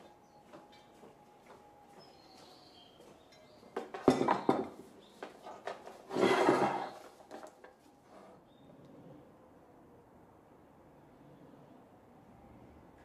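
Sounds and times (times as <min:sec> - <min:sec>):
rough scraping rustle: 0:05.8 - 0:07.4.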